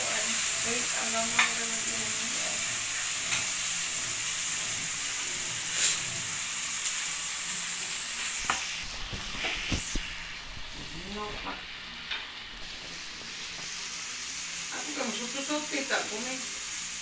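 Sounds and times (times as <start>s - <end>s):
vegetables sizzling in a pan: 0.0s - 17.0s.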